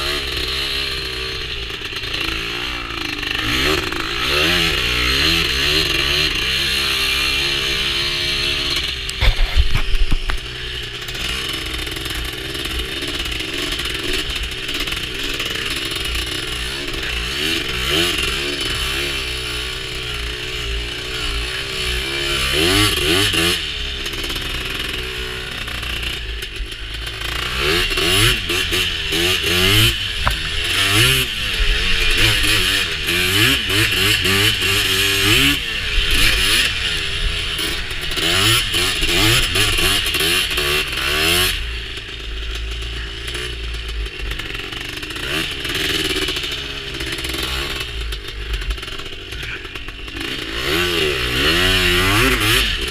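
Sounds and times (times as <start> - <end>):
two-stroke engine revving: 0.0 - 52.9.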